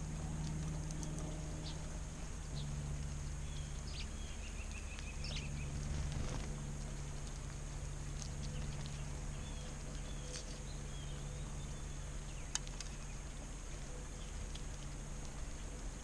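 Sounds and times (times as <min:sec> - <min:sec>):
steady low hum: 0:00.0 - 0:16.0
faint bird chirps: 0:08.3 - 0:14.9.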